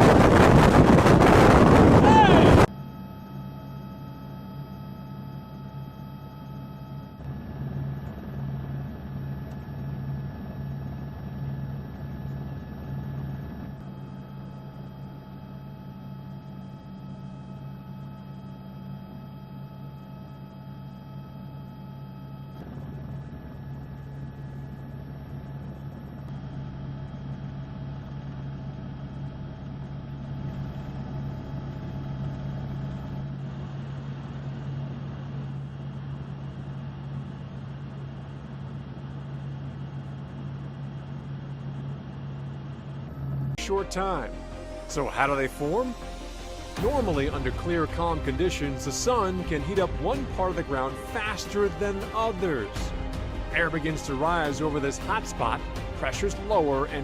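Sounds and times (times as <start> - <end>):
low mechanical hum: 0.0 - 57.0
constant tones: 42.6 - 57.0.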